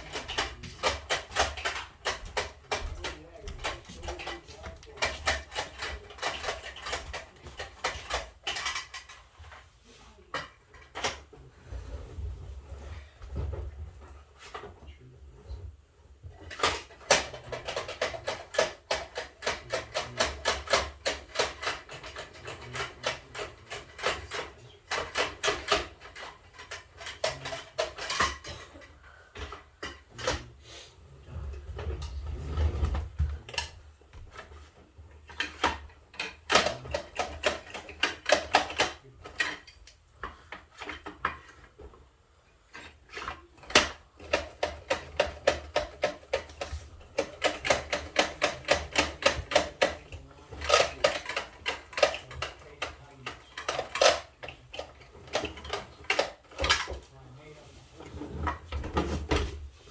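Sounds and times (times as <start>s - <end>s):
plastic toy parts clicking: 0.0s - 9.2s, 16.5s - 28.5s, 35.3s - 40.0s, 43.1s - 57.0s.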